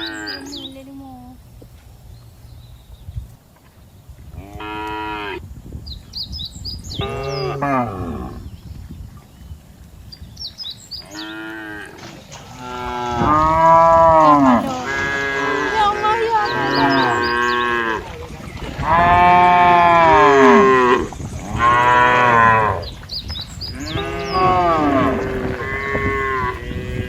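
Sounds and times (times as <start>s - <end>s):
cattle mooing: 7.0s - 8.4s, 11.0s - 18.2s, 18.8s - 22.9s, 23.7s - 27.0s.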